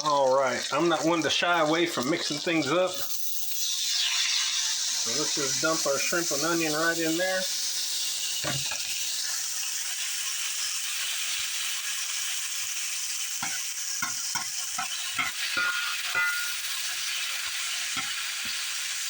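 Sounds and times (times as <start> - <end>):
food sizzling in a skillet: 0.0 - 19.0
utensil knocking against pan: 13.4 - 16.6.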